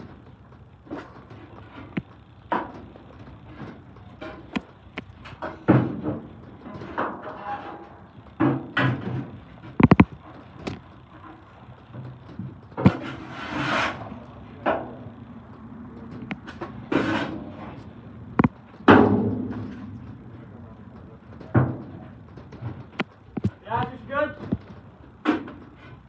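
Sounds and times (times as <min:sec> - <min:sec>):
metallic knocks and thuds: 0:00.0 - 0:13.2, 0:18.4 - 0:25.9
metal scrape: 0:12.8 - 0:14.2, 0:16.5 - 0:17.8.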